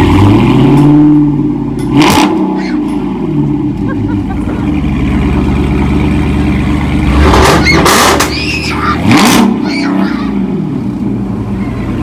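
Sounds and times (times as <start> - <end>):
car engine idling and revving: 0.0 - 12.0
loud high shouts: 2.5 - 2.8, 7.6 - 10.4.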